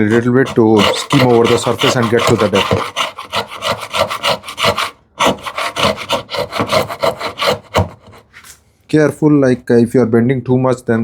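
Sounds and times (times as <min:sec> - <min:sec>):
plane scraping wood: 0:00.0 - 0:08.5.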